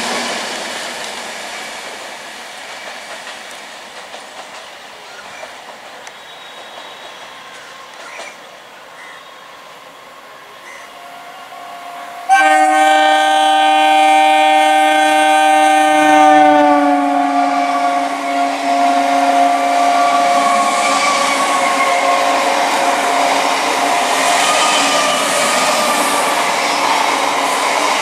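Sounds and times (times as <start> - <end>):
train coaches rumbling and clattering: 0.0 - 28.0
train horn blast: 10.9 - 26.5.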